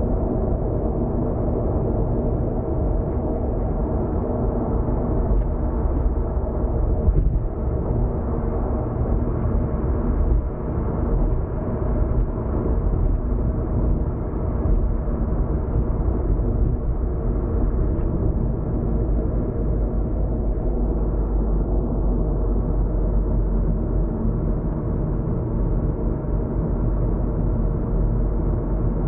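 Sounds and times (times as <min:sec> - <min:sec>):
car cabin road rumble: 0:00.0 - 0:29.0
faint steady hum: 0:00.0 - 0:29.0.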